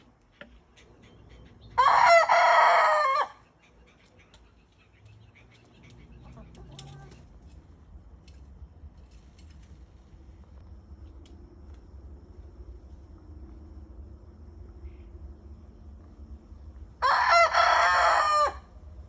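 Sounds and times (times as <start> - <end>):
rooster crowing: 1.8 - 3.4, 17.0 - 18.8.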